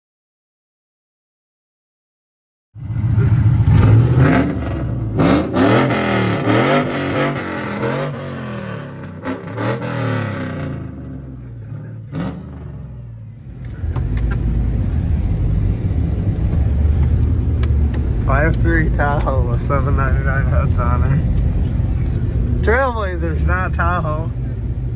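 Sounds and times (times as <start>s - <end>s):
engine revving: 2.8s - 24.9s
engine pops: 13.5s - 22.6s.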